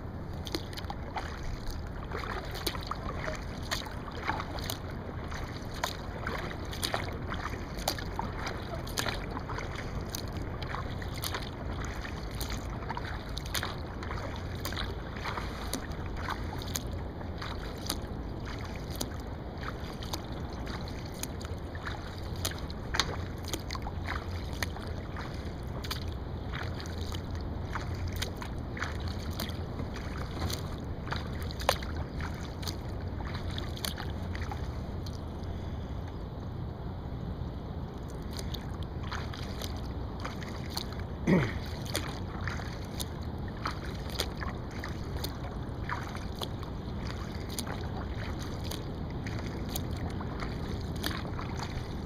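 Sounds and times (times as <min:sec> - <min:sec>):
water washing along hull: 0:00.0 - 0:36.2, 0:37.6 - 0:52.0
water splashing off paddle: 0:00.3 - 0:35.6, 0:38.3 - 0:52.0.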